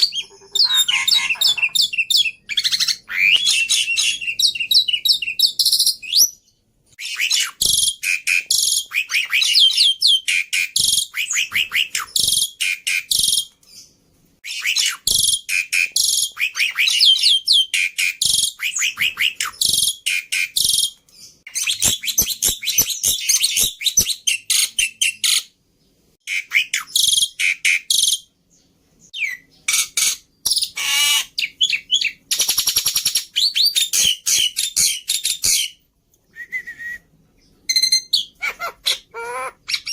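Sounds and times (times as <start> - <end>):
bird warbled whistle: 0.0 - 5.8
bird fast trill: 0.0 - 6.0
bird song chattering: 0.0 - 39.9.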